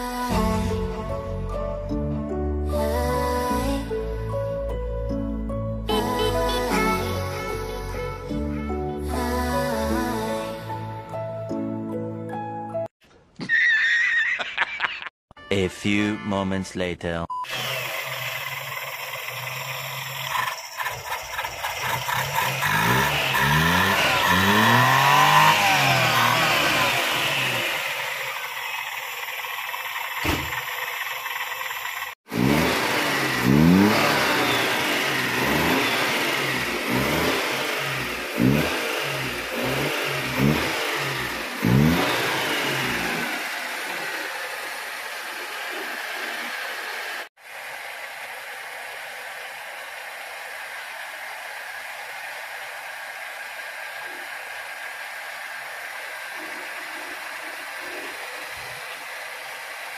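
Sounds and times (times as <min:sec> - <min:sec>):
small car engine revving: 0:17.4 - 0:59.9.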